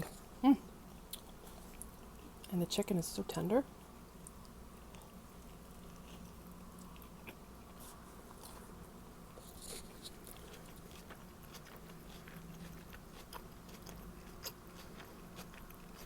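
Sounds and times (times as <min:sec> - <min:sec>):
steady low hum: 0:00.0 - 0:16.0
person chewing: 0:04.2 - 0:16.0.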